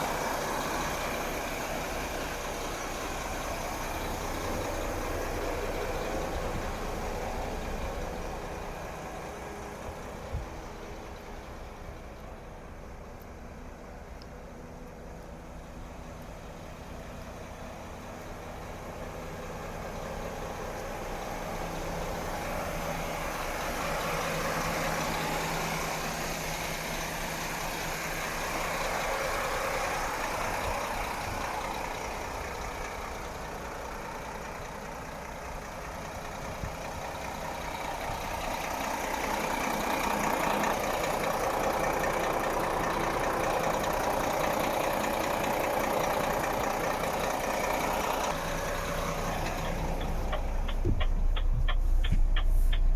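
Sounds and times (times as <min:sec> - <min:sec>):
truck diesel engine idling: 0:00.0 - 0:52.9.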